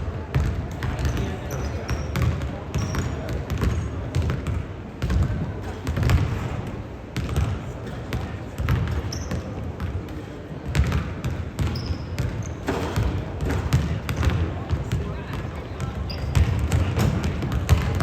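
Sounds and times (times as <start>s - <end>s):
basketball dribbling on gym floor: 0.3s - 1.3s, 1.9s - 6.4s, 7.2s - 15.5s, 16.2s - 18.0s.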